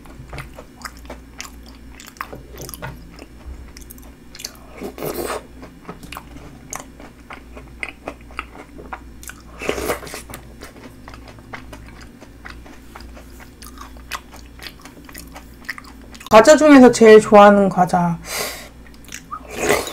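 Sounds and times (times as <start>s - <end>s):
chewing and crunching: 0.0s - 16.3s, 18.8s - 19.9s
wet mouth clicks: 18.9s - 19.4s.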